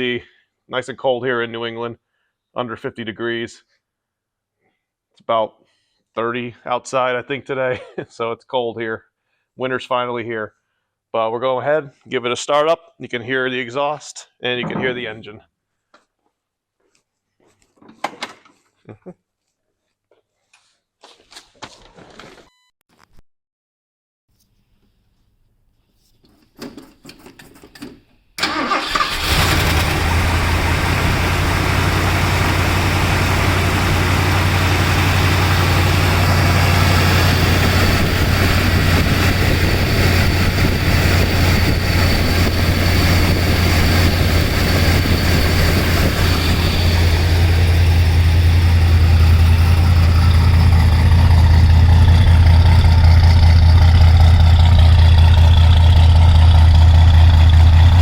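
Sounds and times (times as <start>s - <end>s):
car engine starting and idling: 28.4s - 58.0s.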